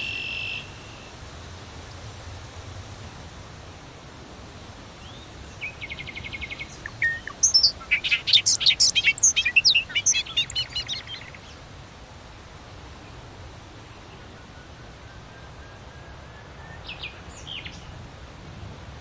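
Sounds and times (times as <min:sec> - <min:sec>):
songbird singing: 0:00.0 - 0:01.2, 0:05.6 - 0:11.5.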